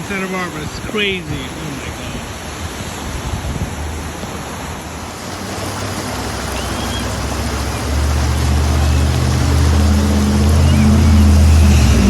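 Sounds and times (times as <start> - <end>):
floodwater rushing: 0.0 - 12.0
vehicle engine approaching: 5.4 - 12.0.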